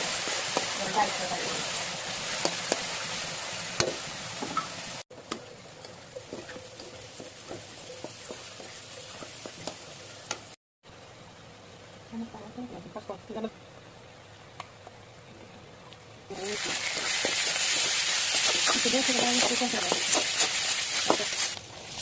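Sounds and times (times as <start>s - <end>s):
chicken sizzling in hot oil: 0.0s - 10.6s, 16.3s - 22.0s.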